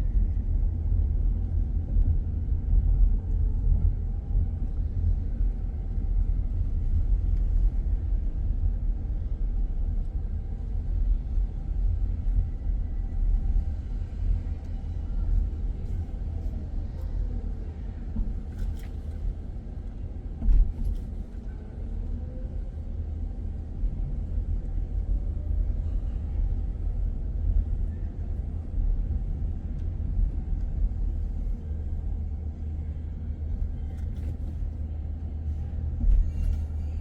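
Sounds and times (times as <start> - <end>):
car engine and road noise: 0.0 - 37.0.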